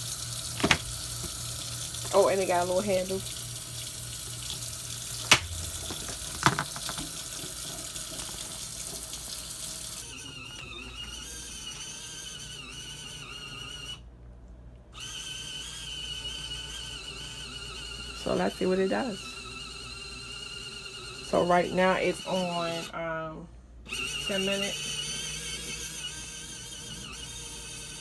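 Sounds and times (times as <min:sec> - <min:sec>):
water running from a tap: 0:00.0 - 0:10.2.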